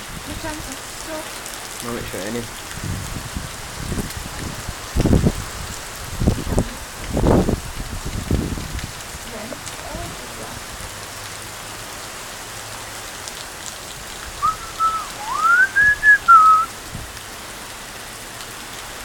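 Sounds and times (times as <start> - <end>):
heavy rain falling: 0.0 - 19.0
person whistling: 14.4 - 16.7.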